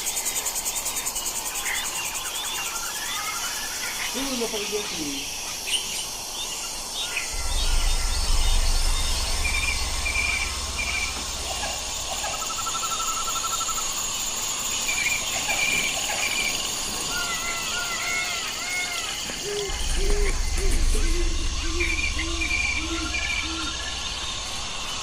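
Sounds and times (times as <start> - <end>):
insects droning: 0.0 - 25.0
small birds calling: 0.0 - 25.0
low rumble: 7.3 - 14.7, 19.4 - 25.0
bird trill: 14.8 - 25.0.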